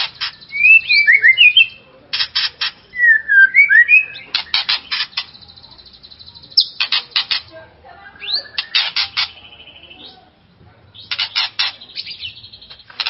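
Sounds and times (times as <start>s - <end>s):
harsh rasping bird notes: 0.0s - 10.2s, 11.0s - 13.0s
bird singing fluting whistles: 0.3s - 1.8s, 3.0s - 4.3s.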